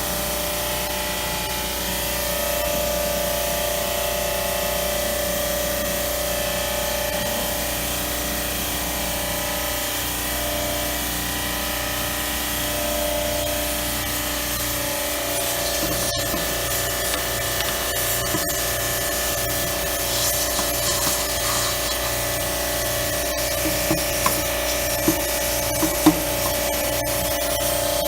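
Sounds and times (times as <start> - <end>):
pressure washer motor running: 14.8 - 28.0
water spray hissing: 15.3 - 26.8.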